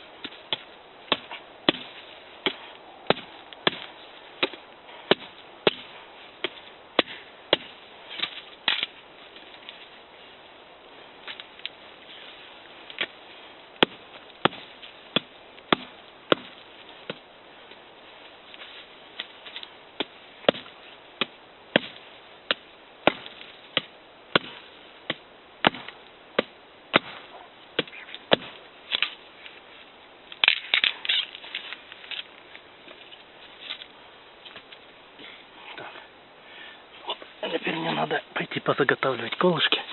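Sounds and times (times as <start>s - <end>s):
digging tool chopping sandy ground: 0.2s - 8.9s, 13.8s - 17.2s, 20.0s - 29.2s.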